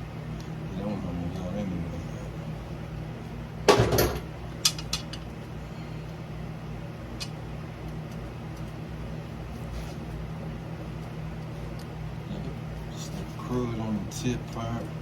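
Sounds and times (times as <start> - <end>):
metal engine parts clanking: 3.7 - 5.2.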